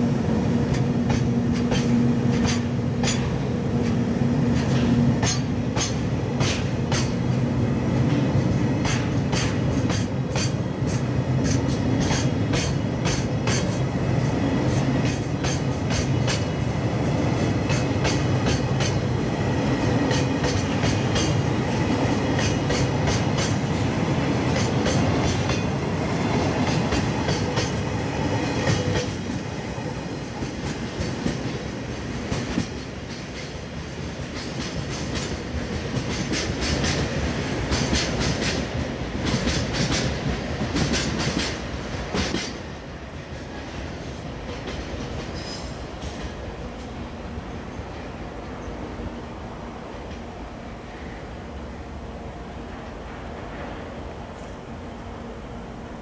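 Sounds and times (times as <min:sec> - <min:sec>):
freight train rumble: 0:00.0 - 0:56.0
wheels clacking over rail joints: 0:00.6 - 0:07.4, 0:08.1 - 0:13.9, 0:19.8 - 0:29.4, 0:34.2 - 0:47.0.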